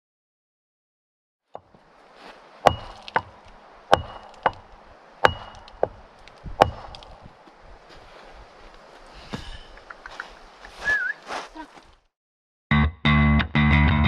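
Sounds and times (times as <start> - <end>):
axe chopping wood: 2.6 - 7.3.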